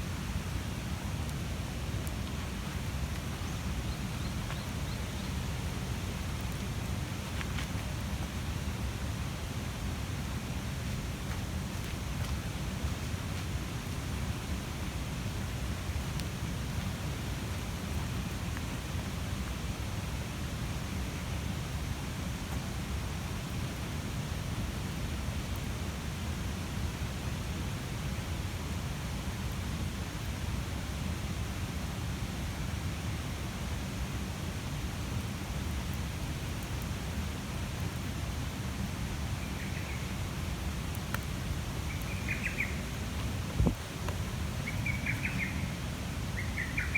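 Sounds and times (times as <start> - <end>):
bonfire burning with rushing noise: 0.0 - 27.5, 33.8 - 45.1
fire crackles: 0.1 - 25.7, 35.2 - 45.4.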